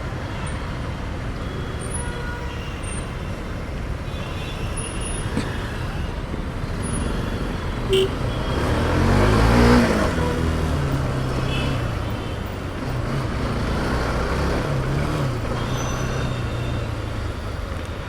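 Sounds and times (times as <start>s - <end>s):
road traffic: 0.0s - 18.0s
vehicle engine accelerating: 8.2s - 17.6s.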